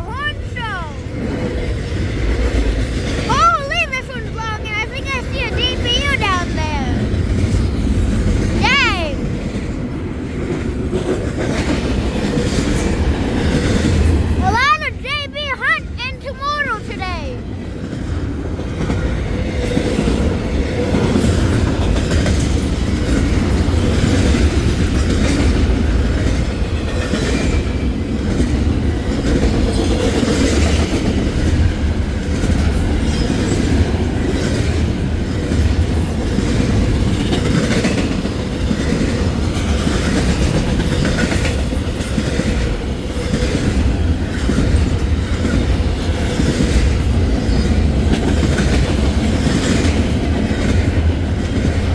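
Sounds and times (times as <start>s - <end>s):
freight train wheels rumbling: 0.0s - 51.9s.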